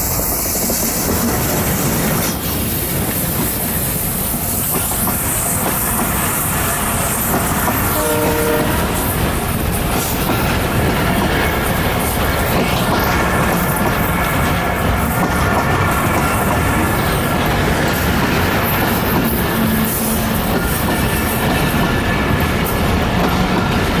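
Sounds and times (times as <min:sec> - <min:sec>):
diesel locomotive engine: 0:00.0 - 0:24.0
train wheels rumbling on rails: 0:00.0 - 0:24.0
train horn blast: 0:07.9 - 0:09.0.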